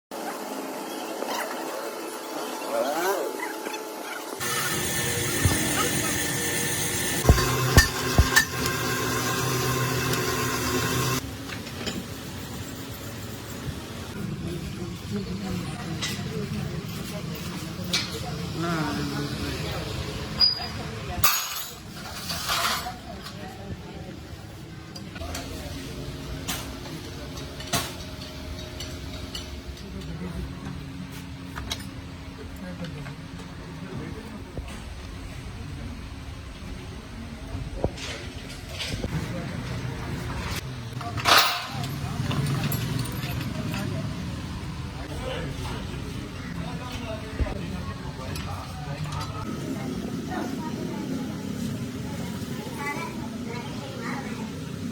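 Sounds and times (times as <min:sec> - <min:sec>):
low workshop hum: 0:04.4 - 0:54.9
steady hum: 0:06.0 - 0:11.2.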